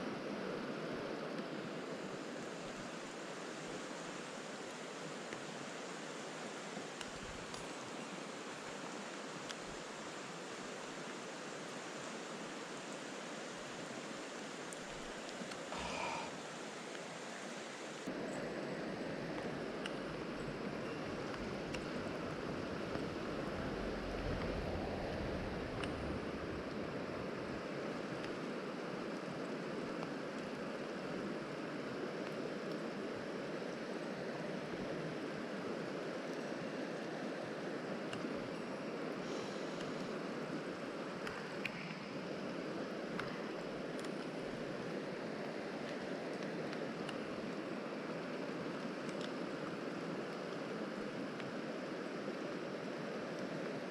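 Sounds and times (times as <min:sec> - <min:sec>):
stream water rushing: 0:00.0 - 0:53.9
wind rumble on microphone: 0:18.9 - 0:28.5.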